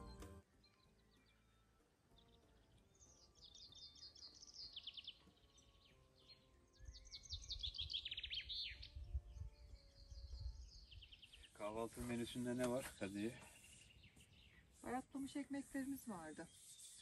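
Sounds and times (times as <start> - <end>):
songbirds trilling: 2.2 - 17.0.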